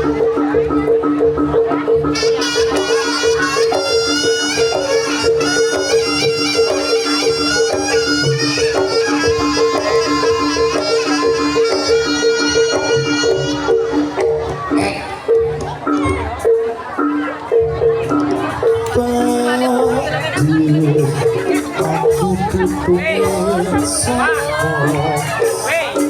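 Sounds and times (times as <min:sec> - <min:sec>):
wavering sliding melody: 0:00.0 - 0:15.3
mallet-struck pulsing pattern: 0:00.0 - 0:24.6.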